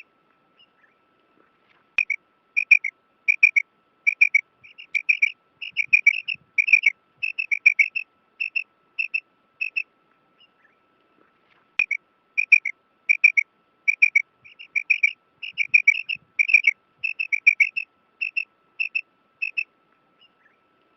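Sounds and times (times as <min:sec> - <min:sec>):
quail chirping calls: 0:02.0 - 0:09.8, 0:11.8 - 0:20.6
faint steady high tone: 0:02.0 - 0:10.7, 0:11.8 - 0:20.6.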